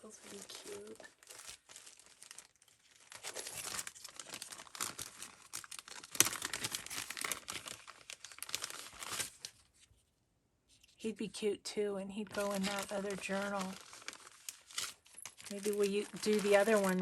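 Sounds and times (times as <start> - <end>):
paper and plastic packets rustling: 0.0 - 10.0, 12.2 - 17.0.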